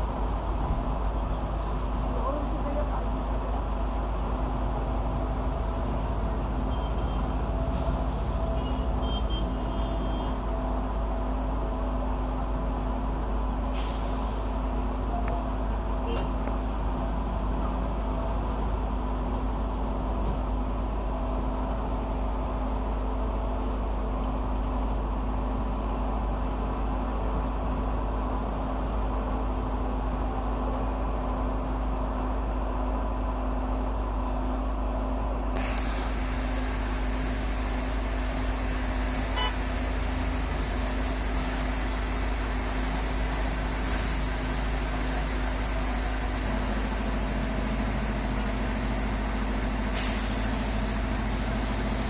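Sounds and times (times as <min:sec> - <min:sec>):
bright hiss: 0:35.6 - 0:40.1
car wash machinery humming: 0:35.6 - 0:52.0.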